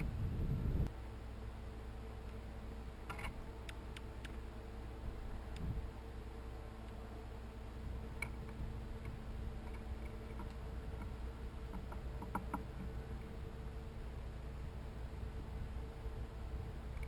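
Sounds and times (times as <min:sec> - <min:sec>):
steady low hum: 0:00.0 - 0:17.0
birds ticking at feeder: 0:08.2 - 0:13.3.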